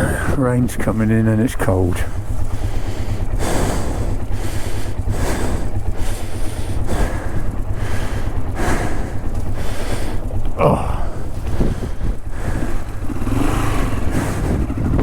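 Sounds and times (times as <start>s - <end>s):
steady low rumble: 0.0s - 15.0s
person breathing hard: 1.6s - 15.0s.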